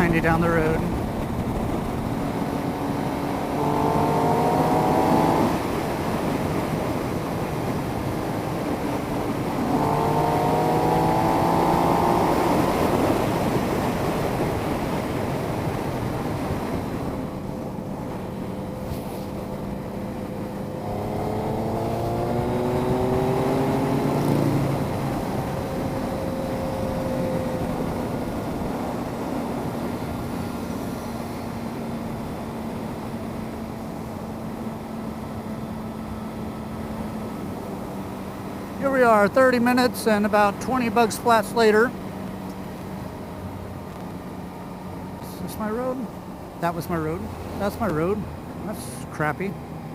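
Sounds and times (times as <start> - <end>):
wind rush: 0.0 - 34.6
motorcycle engine accelerating: 0.0 - 38.9.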